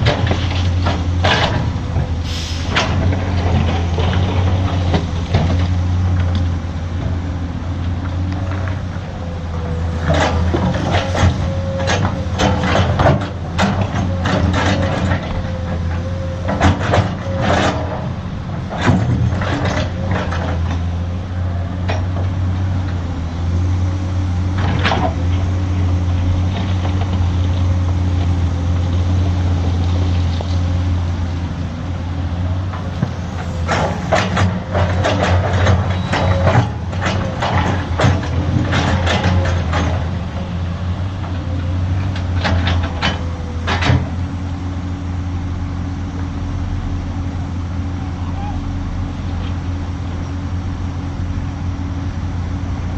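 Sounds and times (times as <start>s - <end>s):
heavy diesel engine running: 0.0s - 52.9s
metallic clanks and knocks: 32.7s - 40.4s, 41.9s - 44.2s.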